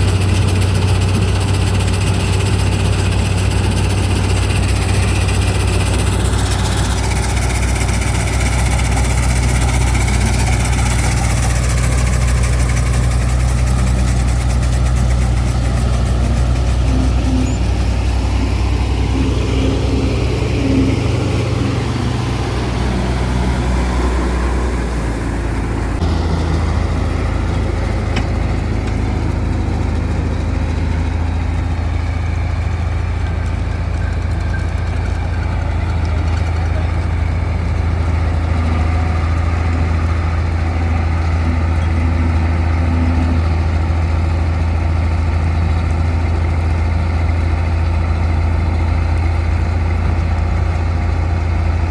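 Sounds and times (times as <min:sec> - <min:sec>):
combine harvester engine humming: 0:00.0 - 0:51.9.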